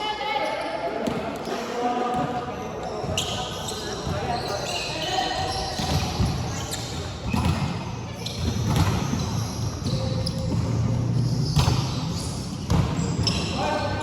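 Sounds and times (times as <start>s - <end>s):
players' voices: 0.0s - 14.0s
volleyball slapping floor: 8.4s - 11.0s.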